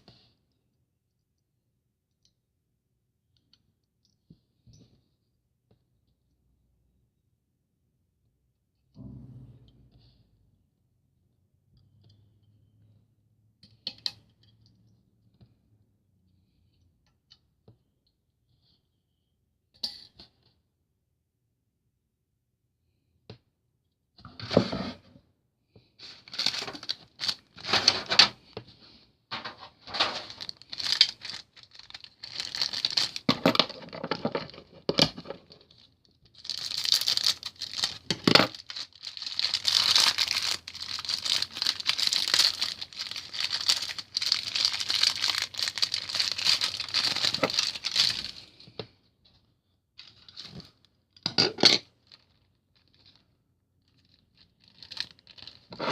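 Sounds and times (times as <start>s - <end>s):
packaging tearing and crinkling: 26.1s - 28.4s, 29.4s - 34.6s, 35.2s - 48.5s, 54.0s - 55.8s.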